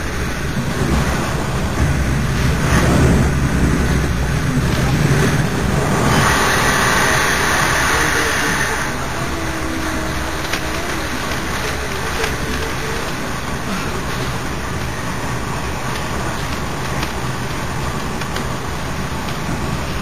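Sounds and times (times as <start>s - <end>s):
train wheels rumbling on rails: 0.0s - 20.0s
faint clicks: 15.9s - 18.6s.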